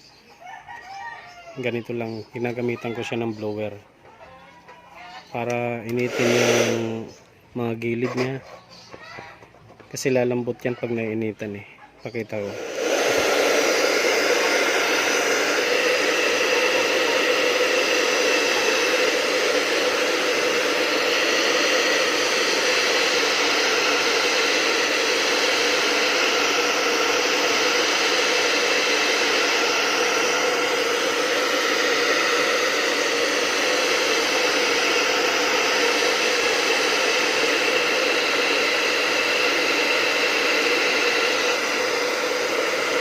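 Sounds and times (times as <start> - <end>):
hot-air blower hissing: 5.4 - 7.3, 12.1 - 43.0.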